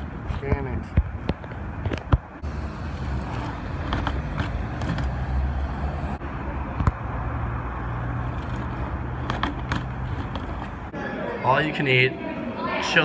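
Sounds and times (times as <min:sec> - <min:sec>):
vehicle engine humming: 0:01.1 - 0:11.0.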